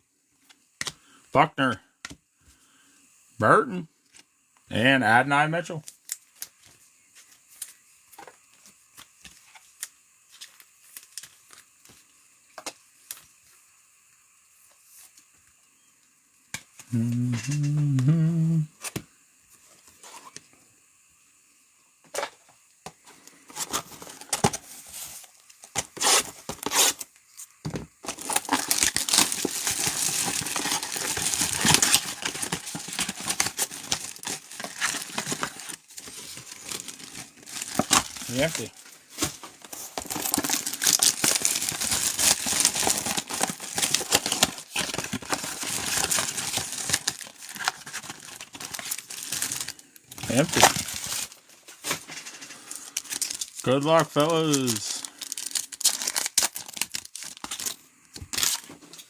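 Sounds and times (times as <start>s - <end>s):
foil wrappers tearing and crinkling: 5.8s - 6.7s, 9.0s - 12.0s, 23.5s - 27.1s, 28.0s - 59.0s
cards and packaging clicking: 28.0s - 52.0s, 52.7s - 59.0s.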